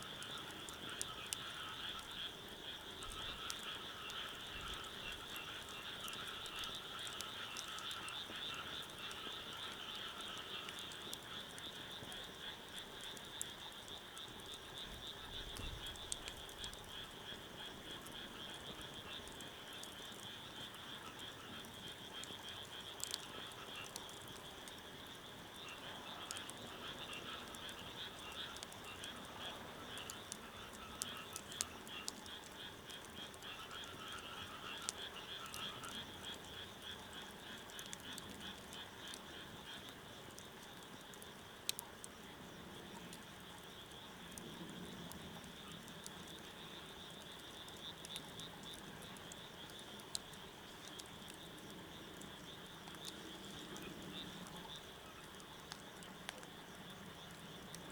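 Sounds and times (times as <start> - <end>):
frogs croaking: 0.0 - 57.9.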